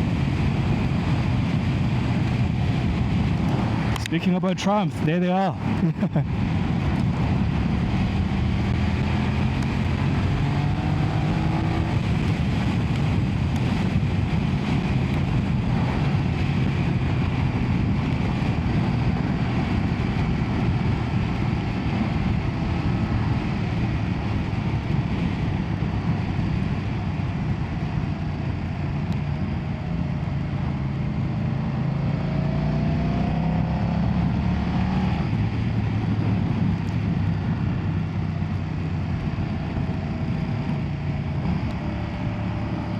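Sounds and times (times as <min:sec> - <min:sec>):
motorcycle engine running: 0:00.0 - 0:42.9
wind and road noise: 0:00.0 - 0:42.9.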